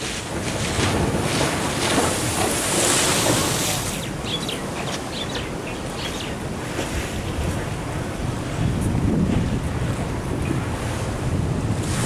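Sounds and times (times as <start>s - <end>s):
surf washing: 0.0s - 12.0s
wind buffeting microphone: 0.0s - 12.0s.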